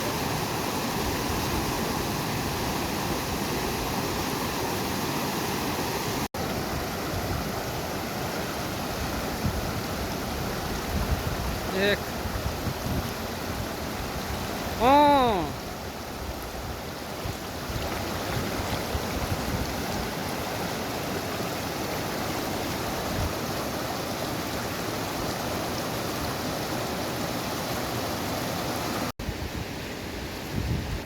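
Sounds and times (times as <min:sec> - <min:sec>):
river rushing: 0:00.0 - 0:31.0.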